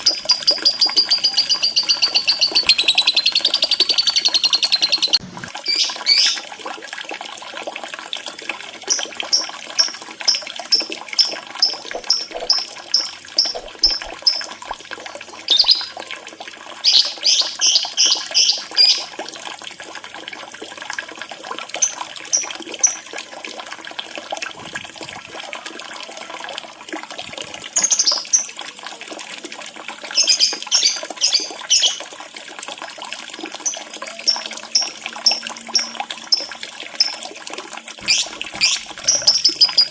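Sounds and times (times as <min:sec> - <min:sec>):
high bird chirps: 0:00.0 - 0:06.4, 0:08.9 - 0:14.5, 0:15.5 - 0:15.9, 0:16.8 - 0:19.1, 0:27.8 - 0:28.4, 0:38.0 - 0:39.9
trickling water: 0:00.0 - 0:39.9.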